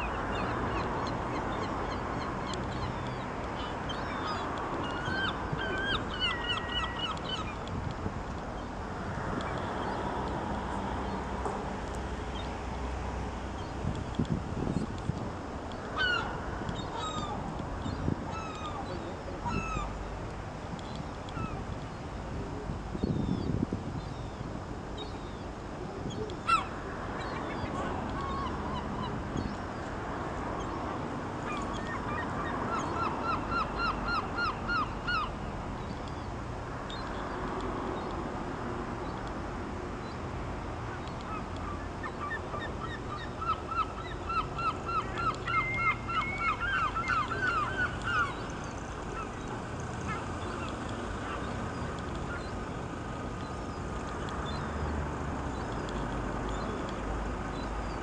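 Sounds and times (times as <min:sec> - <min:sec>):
steady background hiss: 0:00.0 - 0:58.0
bird calls with nasal notes: 0:26.1 - 0:29.1, 0:41.3 - 0:52.6.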